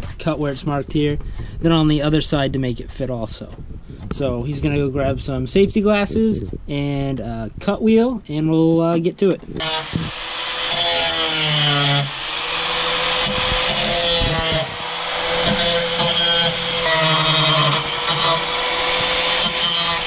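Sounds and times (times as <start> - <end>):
angle grinder cutting sheet metal: 9.6 - 20.0.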